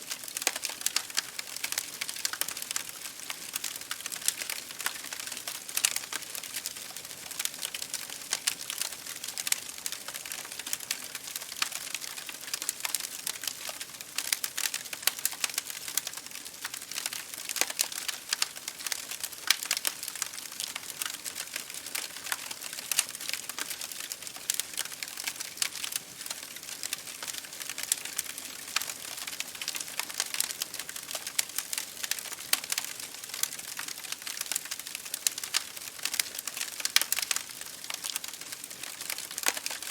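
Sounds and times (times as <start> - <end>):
campfire wood crackling: 0.0 - 39.9.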